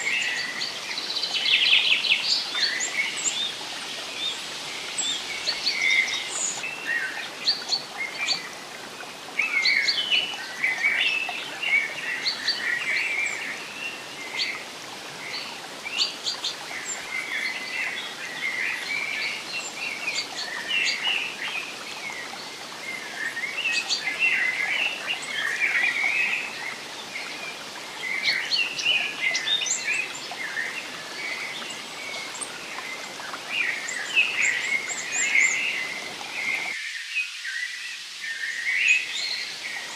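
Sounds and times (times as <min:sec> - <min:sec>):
birds chirping and twittering: 0:00.0 - 0:39.9.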